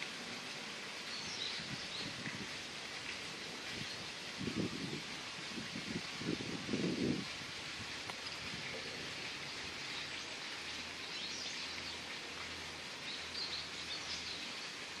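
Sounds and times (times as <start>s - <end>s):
outdoor background hiss: 0.0s - 15.0s
small birds chirping: 1.0s - 2.3s, 8.1s - 12.1s, 13.0s - 14.8s.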